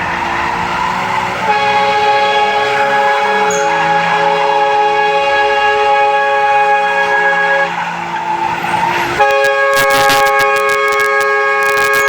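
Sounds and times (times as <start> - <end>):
tyres squealing: 7.7 - 12.0.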